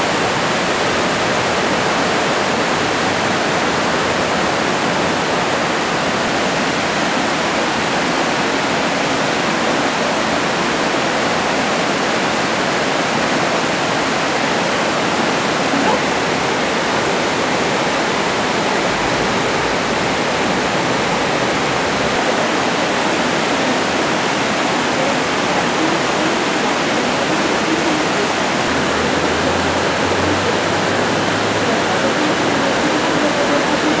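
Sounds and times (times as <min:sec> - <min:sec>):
floodwater rushing: 0:00.0 - 0:34.0
torrential rain: 0:00.0 - 0:34.0.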